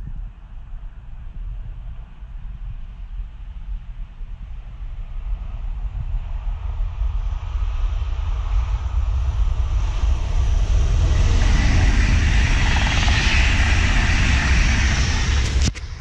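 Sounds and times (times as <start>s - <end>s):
electric train passing at speed: 4.5s - 16.0s.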